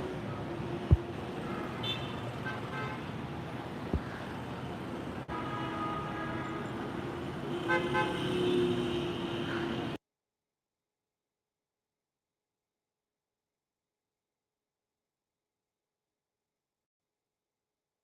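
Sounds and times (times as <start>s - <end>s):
street traffic noise: 0.0s - 10.0s
vehicle horns tooting: 1.8s - 3.1s, 5.3s - 6.8s, 7.5s - 9.5s.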